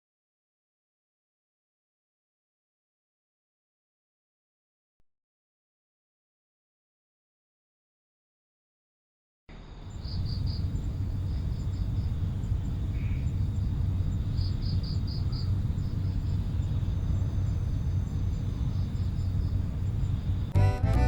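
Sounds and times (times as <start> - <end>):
steady low rumble: 9.6 - 21.0
insects chirping in trills: 9.7 - 20.5
music with organ-like chords: 16.9 - 21.0.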